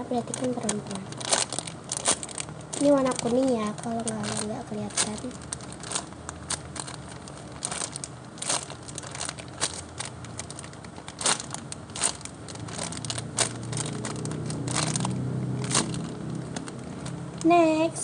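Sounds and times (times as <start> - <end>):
foam toy crinkling and crackling: 0.0 - 18.0.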